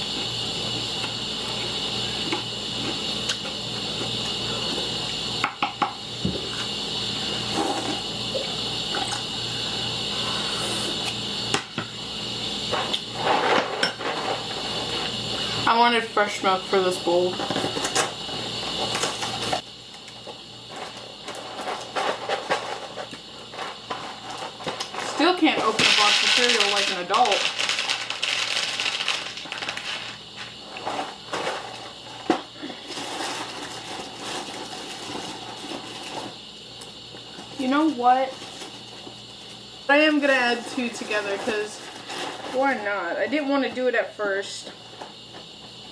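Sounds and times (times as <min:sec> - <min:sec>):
cereal box and bag rustling: 0:21.8 - 0:32.0, 0:32.6 - 0:36.3.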